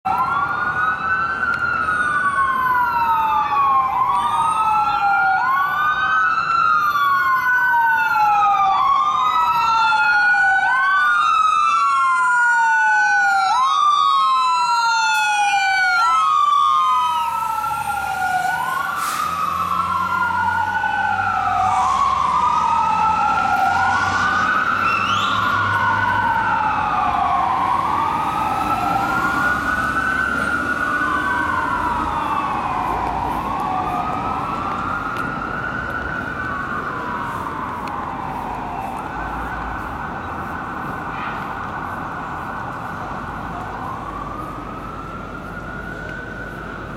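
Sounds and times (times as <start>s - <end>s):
fire engine sirens wailing: 0.0s - 46.9s.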